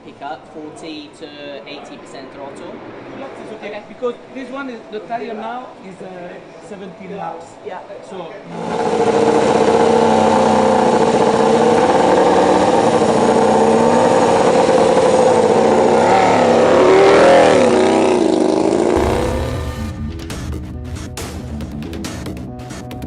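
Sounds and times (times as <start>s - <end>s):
racing motorcycle engine revving: 8.5s - 20.4s.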